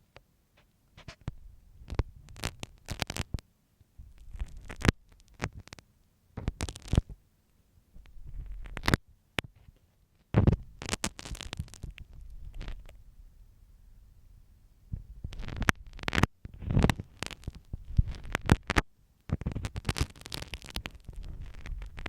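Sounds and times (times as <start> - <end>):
pin scratching and tapping microphone: 0.6 - 3.4, 4.1 - 5.8, 6.4 - 7.2, 8.0 - 13.0, 15.0 - 22.0.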